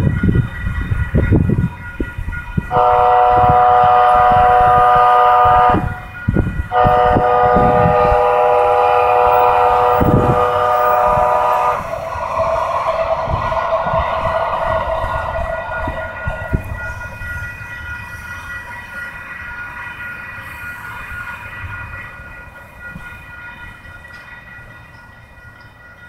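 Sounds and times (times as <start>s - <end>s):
train horn blasts: 2.7s - 17.0s.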